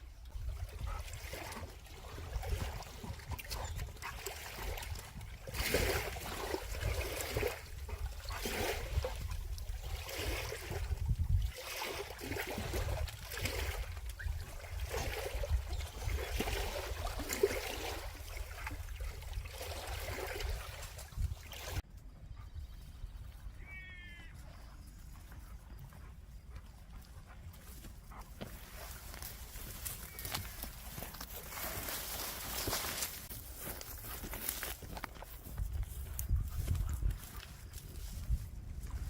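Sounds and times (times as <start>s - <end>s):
water sloshing and trickling: 0.0s - 21.9s, 28.3s - 36.7s
wind rumble on microphone: 0.0s - 23.6s, 34.8s - 39.0s.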